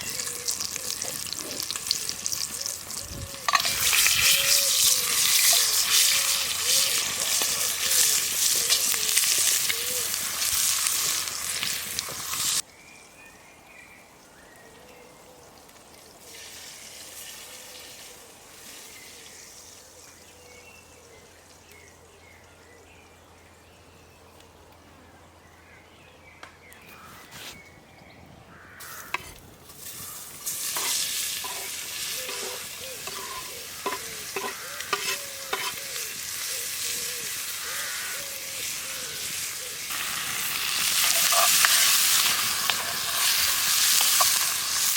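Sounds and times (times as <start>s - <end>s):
food sizzling in a pot: 0.0s - 12.6s, 16.2s - 20.3s, 28.8s - 44.9s.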